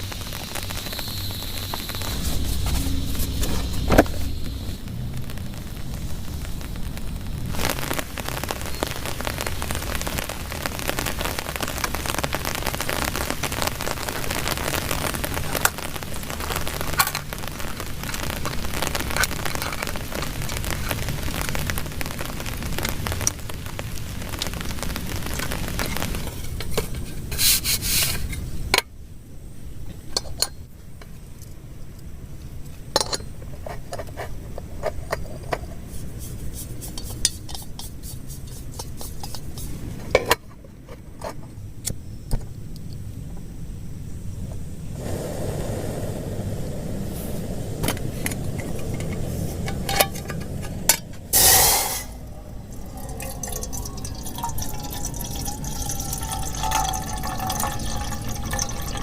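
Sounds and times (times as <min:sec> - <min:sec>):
scattered taps and clicks: 0:00.0 - 0:27.2
heavy rain falling: 0:00.0 - 0:28.6, 0:44.8 - 0:59.0.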